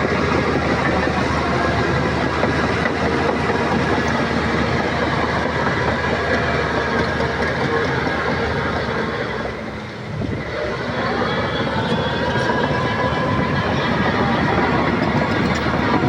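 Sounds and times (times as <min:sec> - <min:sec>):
bulldozer diesel engine under load: 0:00.0 - 0:16.0
steel tracks clanking: 0:00.0 - 0:16.0.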